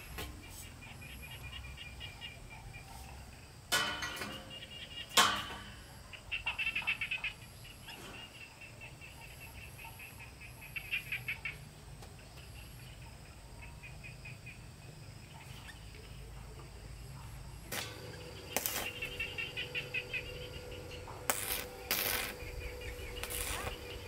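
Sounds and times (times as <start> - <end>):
outdoor ambience: 0.0 - 24.0
bird chirping trills: 4.3 - 11.6, 17.6 - 24.0
short noise bursts: 17.7 - 24.0.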